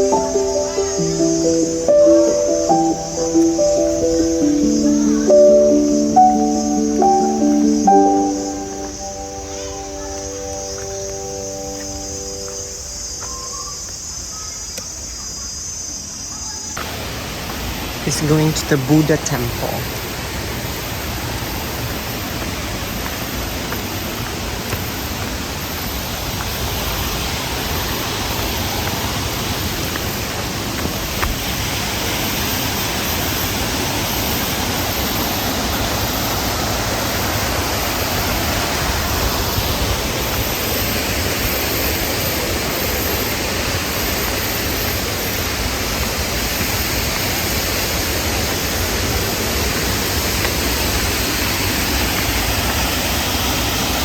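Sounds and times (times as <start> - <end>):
flowing water rushing: 16.8 - 54.0.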